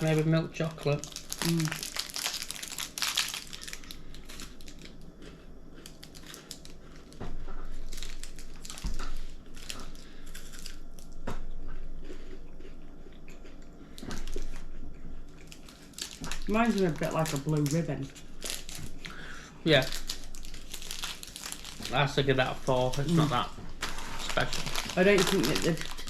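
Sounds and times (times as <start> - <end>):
wrapper crinkling: 0.0 - 5.0, 5.8 - 11.1, 15.4 - 19.0, 19.7 - 26.0
crunching wafer bar: 0.7 - 11.2, 15.3 - 26.0.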